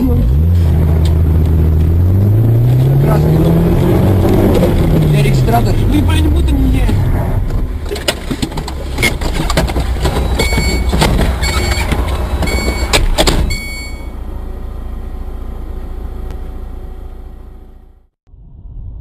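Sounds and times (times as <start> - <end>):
car road and engine rumble: 0.0 - 19.0
sharp knocks and rattles: 6.8 - 13.5.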